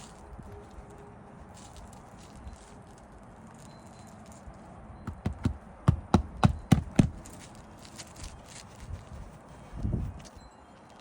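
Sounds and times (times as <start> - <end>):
hammer striking roofing nails: 5.1 - 7.2.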